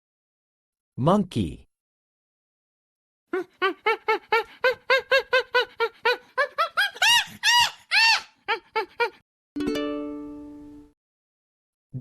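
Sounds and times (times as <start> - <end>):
monkey hooting and shrieking: 6.7 - 9.2.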